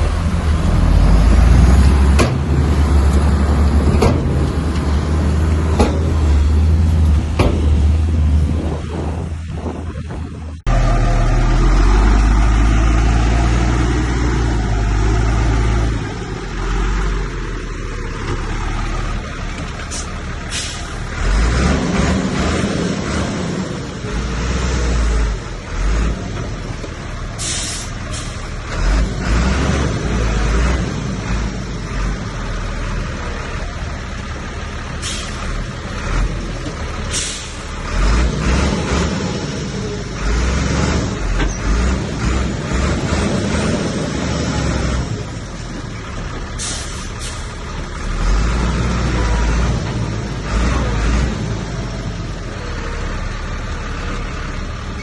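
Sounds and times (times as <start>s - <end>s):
bulldozer diesel engine rumbling: 0.0s - 55.0s.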